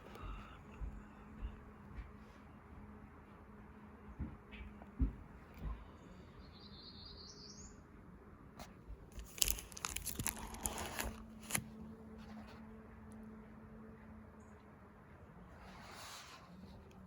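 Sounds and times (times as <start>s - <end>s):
faint high rising chirp: 5.9s - 8.0s
paper rustling and crackling: 9.1s - 12.7s.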